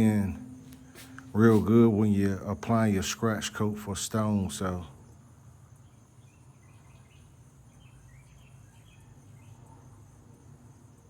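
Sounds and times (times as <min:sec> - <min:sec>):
low background hum: 0:00.0 - 0:11.0
faint bird chirps: 0:05.0 - 0:10.0.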